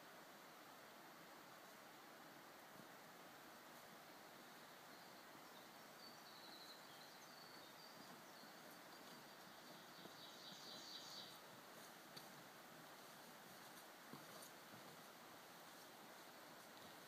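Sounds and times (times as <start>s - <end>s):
faint forest background hiss: 0.0s - 17.0s
distant bird chirping: 4.2s - 11.5s.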